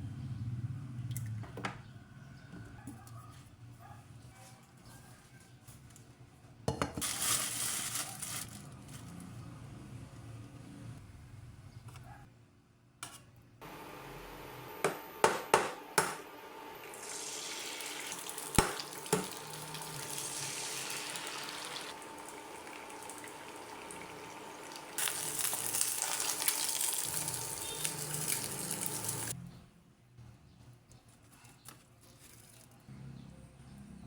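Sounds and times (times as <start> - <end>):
steady hissing of water or frying: 16.9 - 29.4.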